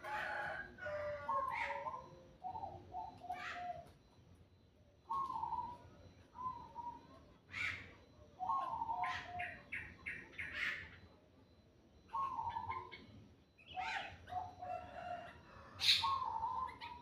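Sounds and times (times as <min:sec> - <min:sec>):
low bird calls: 0:00.0 - 0:17.0.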